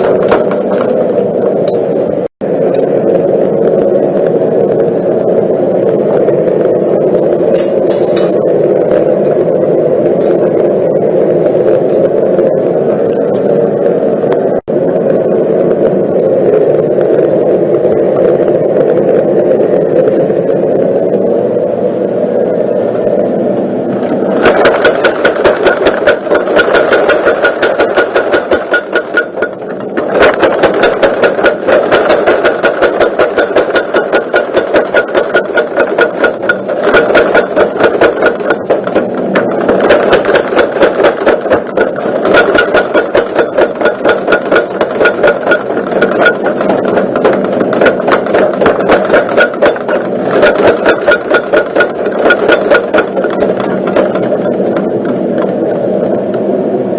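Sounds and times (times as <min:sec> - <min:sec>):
motor hum: 0:00.0 - 0:56.9
power hammer blows: 0:24.1 - 0:55.5.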